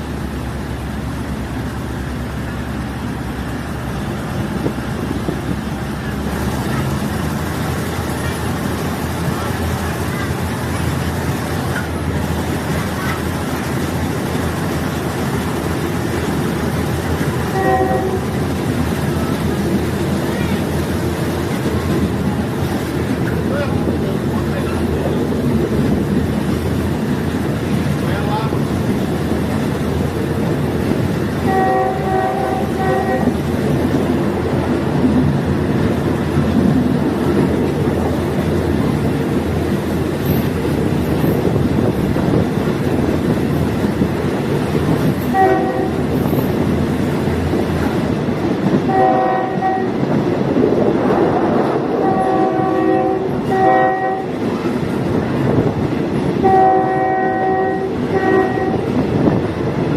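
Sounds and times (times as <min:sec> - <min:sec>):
train rumbling: 0:00.0 - 0:59.9
train horn blasts: 0:17.5 - 0:18.5, 0:31.4 - 0:33.4, 0:45.3 - 0:46.1, 0:48.9 - 0:50.1, 0:51.9 - 0:54.4, 0:56.4 - 0:58.9.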